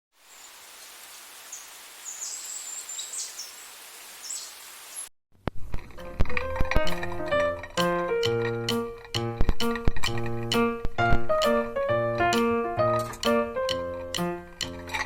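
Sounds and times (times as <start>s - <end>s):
outdoor hiss: 0.1s - 5.1s
high bird chirps: 0.3s - 5.1s
plucked acoustic guitar music: 5.8s - 11.6s.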